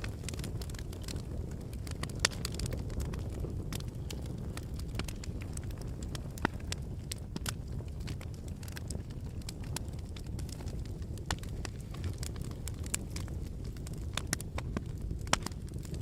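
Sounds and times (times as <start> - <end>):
fire crackling in fireplace: 0.0 - 16.0.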